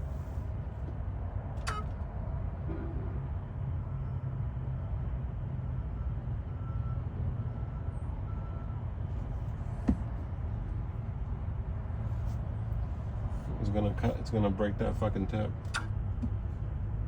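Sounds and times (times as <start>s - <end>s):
sharp click: 15.7s - 16.0s.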